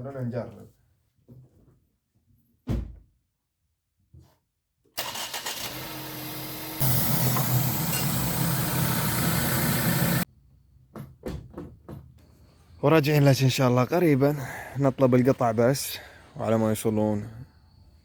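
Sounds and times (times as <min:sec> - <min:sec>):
thump: 0:02.6 - 0:03.1
car engine cranking and running: 0:05.0 - 0:10.2.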